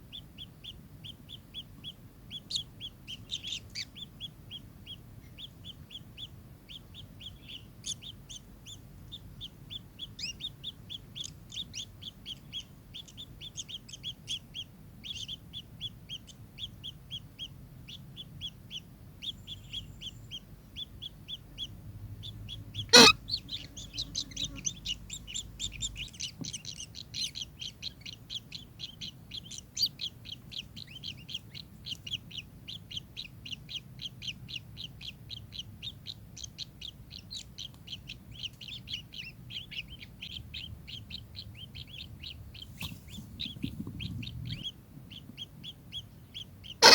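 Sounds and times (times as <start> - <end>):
kingfisher chattering call: 22.8 - 25.0, 46.6 - 46.9.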